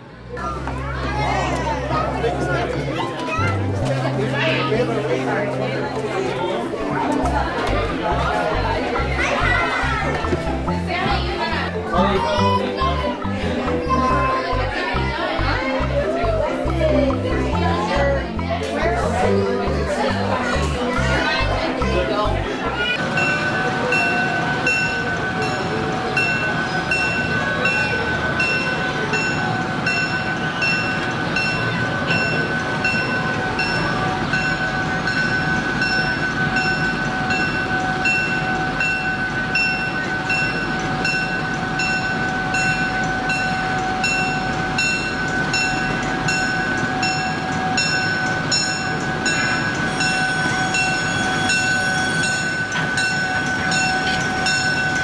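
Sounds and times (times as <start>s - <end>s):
bell ringing: 6.4s - 55.0s
toy train running: 22.8s - 55.0s.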